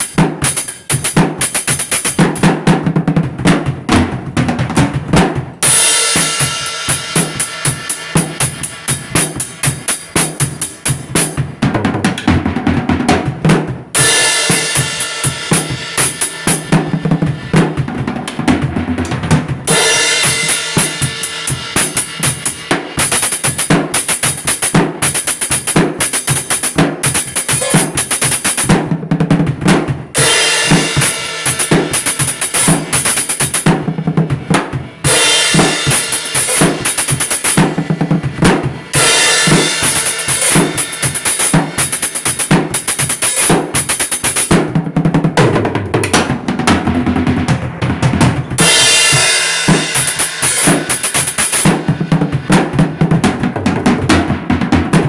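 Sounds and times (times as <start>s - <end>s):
kick and snare drum beat: 0.0s - 55.0s
cymbal wash: 5.6s - 11.4s, 19.7s - 24.5s, 30.2s - 44.2s, 48.6s - 52.4s.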